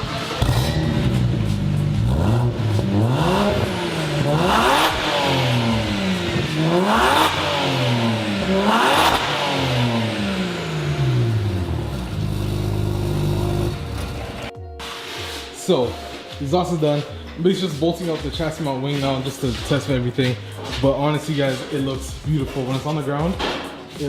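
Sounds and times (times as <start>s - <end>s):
car engine idling: 0.0s - 14.5s
car engine revving: 0.0s - 14.5s.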